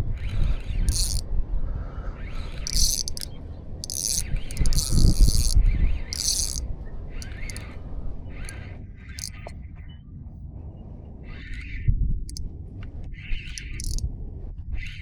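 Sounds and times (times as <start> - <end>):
wind rumble on microphone: 0.0 - 15.0
fishing reel drag ticking: 0.9 - 1.2, 2.6 - 6.6, 7.2 - 7.7, 13.5 - 14.0.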